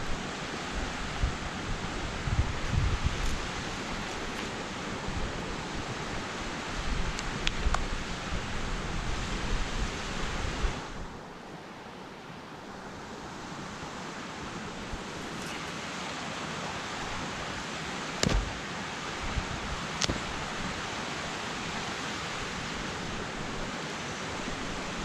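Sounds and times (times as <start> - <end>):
wind buffeting microphone: 0.0 - 11.2
steady outdoor rushing noise: 0.0 - 25.0.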